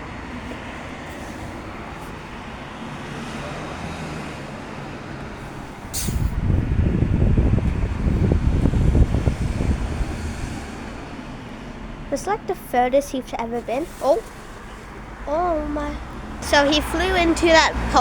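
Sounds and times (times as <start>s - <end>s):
distant road traffic: 0.0s - 18.0s
loud irregular low rumble: 5.4s - 14.3s.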